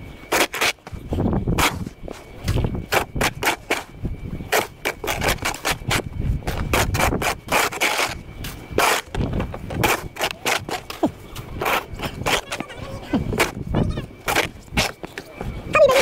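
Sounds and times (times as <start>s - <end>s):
snow shovel scraping pavement: 0.3s - 0.9s, 1.6s - 2.0s, 2.9s - 3.9s, 4.5s - 13.6s, 14.2s - 15.2s.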